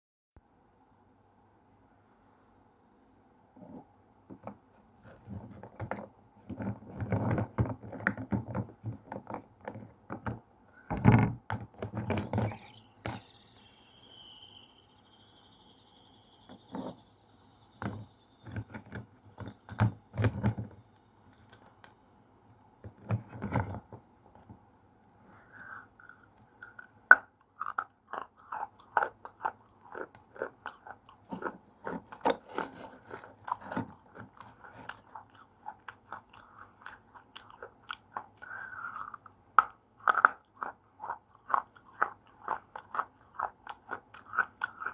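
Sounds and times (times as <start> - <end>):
pencils crunching being chewed: 26.1 - 44.9.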